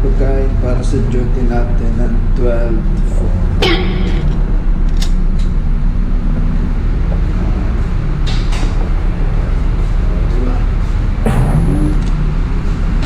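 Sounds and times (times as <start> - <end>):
ship engine drone: 3.2 - 13.0.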